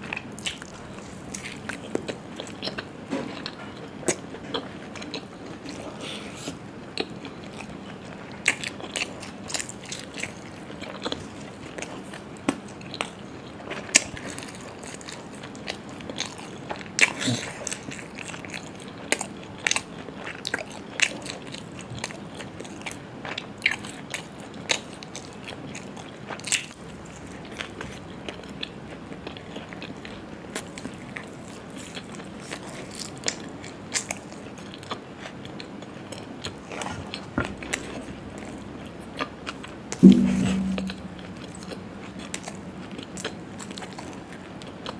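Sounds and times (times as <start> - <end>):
person chewing food: 0.0 - 38.6.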